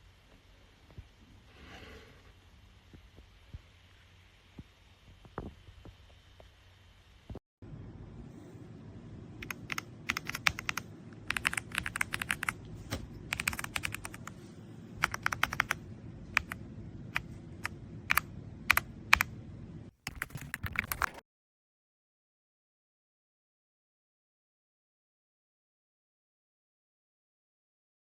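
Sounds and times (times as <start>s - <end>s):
low steady background hum: 0.0s - 21.2s
mechanical keyboard typing: 9.4s - 14.4s, 15.0s - 15.8s, 16.4s - 16.6s, 17.2s - 19.3s, 20.0s - 21.2s.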